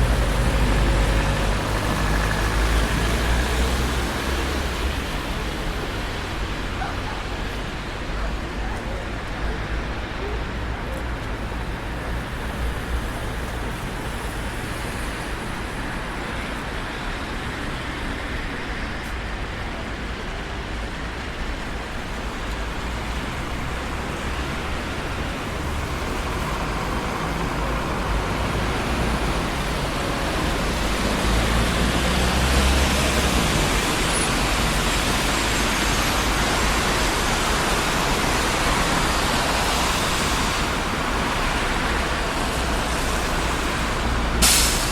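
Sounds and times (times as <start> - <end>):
cars rushing past: 0.0 - 7.8, 22.8 - 44.9.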